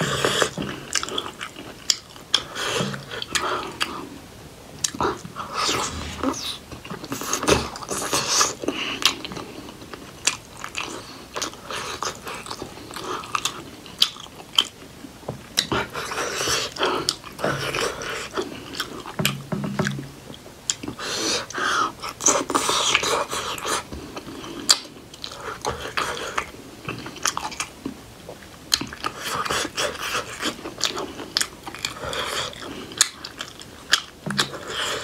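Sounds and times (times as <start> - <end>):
wet chewing and lip-smacking: 0.2 - 4.1, 4.8 - 6.0, 7.2 - 14.8, 20.7 - 35.0.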